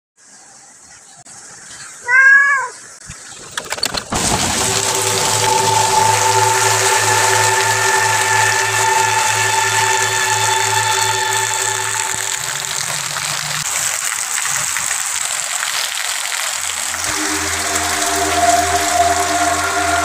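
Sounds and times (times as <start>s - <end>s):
heavy rain pouring: 3.6s - 20.0s
droning music with held tones: 4.2s - 13.7s, 16.8s - 20.0s.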